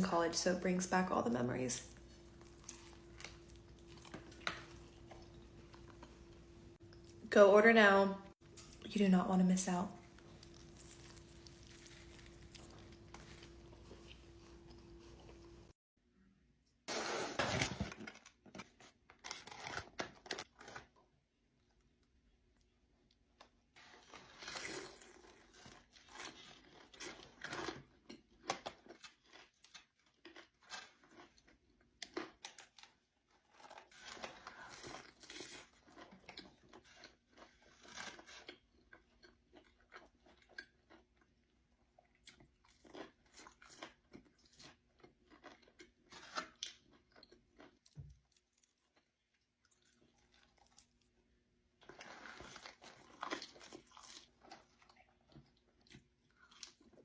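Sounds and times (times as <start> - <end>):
crunchy chewing and biting: 1.9 - 7.2, 10.0 - 15.7, 51.8 - 57.0.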